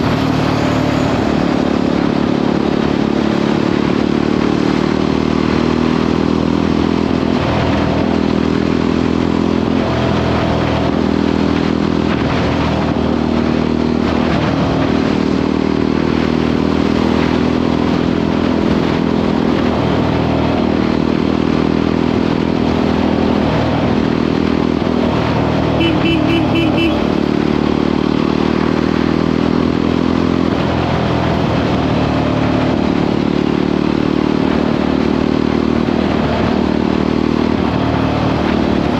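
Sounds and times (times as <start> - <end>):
motorcycle engine cruising: 0.0 - 38.9
short pulsing beep: 25.8 - 27.0.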